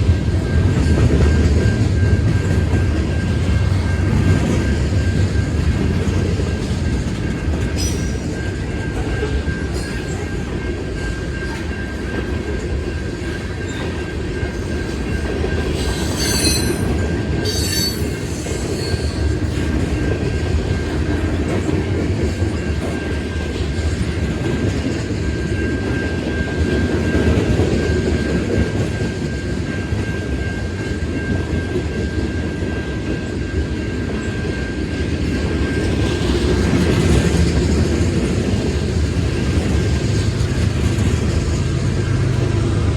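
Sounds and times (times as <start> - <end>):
crossing signal bell ringing: 0.0 - 21.4
freight train rumble and wheel clatter: 0.0 - 42.9
train wheel squeals: 0.0 - 42.9.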